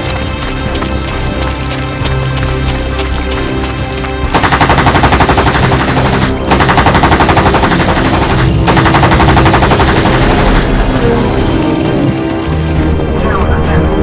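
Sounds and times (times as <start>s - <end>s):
music: 0.0s - 14.0s
automatic gunfire: 4.3s - 11.3s.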